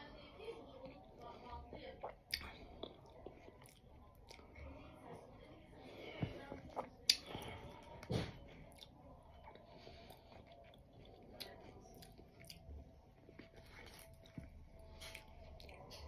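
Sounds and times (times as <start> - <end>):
chewing and mouth clicks: 0.8 - 4.7, 6.5 - 8.0, 8.7 - 16.0.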